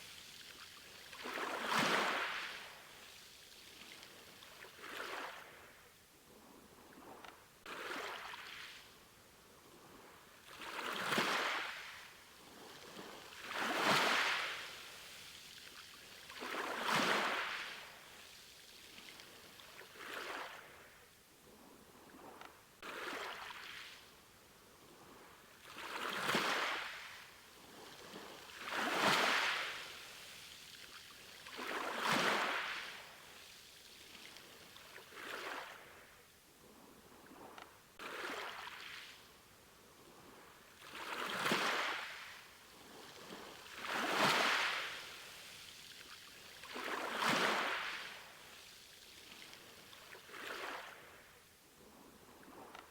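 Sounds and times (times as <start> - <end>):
small sea waves washing in: 0.0 - 5.9, 9.8 - 21.1, 22.1 - 52.8.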